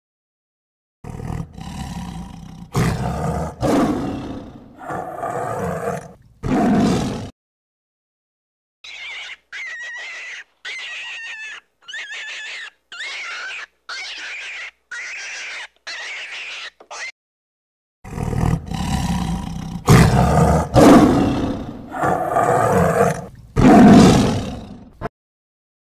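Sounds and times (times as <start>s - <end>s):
tiger roaring and growling: 1.0s - 7.3s, 18.1s - 25.1s.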